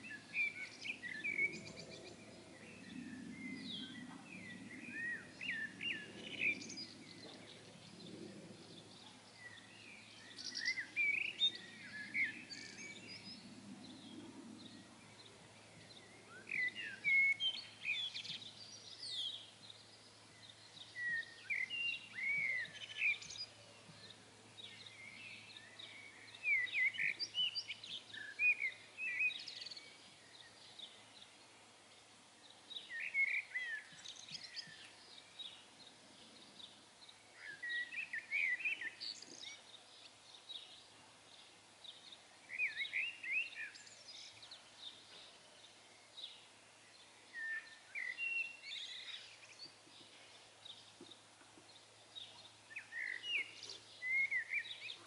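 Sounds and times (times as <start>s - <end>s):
faint outdoor background noise: 0.0s - 55.0s
songbird chirps and whistles: 9.4s - 13.3s, 15.9s - 31.0s, 32.8s - 35.6s, 37.4s - 39.7s, 41.8s - 45.3s, 46.1s - 51.2s, 52.2s - 55.0s.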